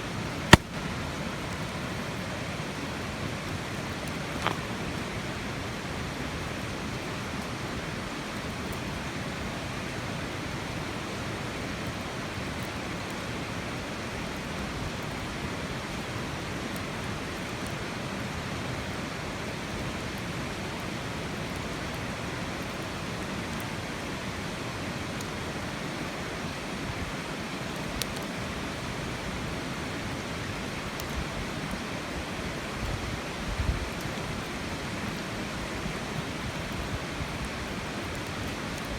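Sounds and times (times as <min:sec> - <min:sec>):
sharp crackles: 0:00.5 - 0:00.7.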